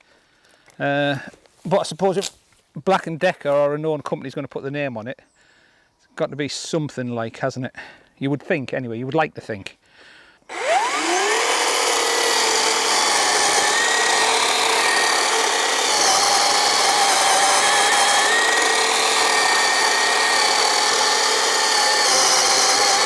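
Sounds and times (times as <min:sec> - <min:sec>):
electric chainsaw cutting log: 0:10.5 - 0:23.0.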